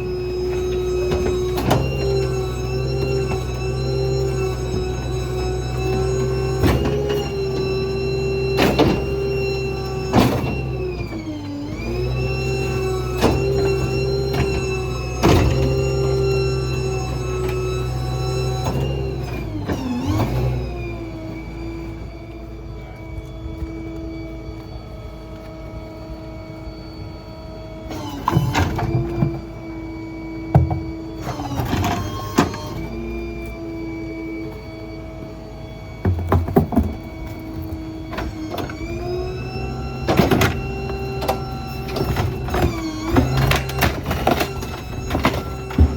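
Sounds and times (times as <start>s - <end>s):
engine and pump hum: 0.0s - 45.9s
garbage truck hydraulic whine: 0.0s - 45.9s
debris clanking into hopper: 12.3s - 20.5s, 36.0s - 45.9s
crunching and clattering: 36.0s - 38.9s, 40.1s - 45.9s.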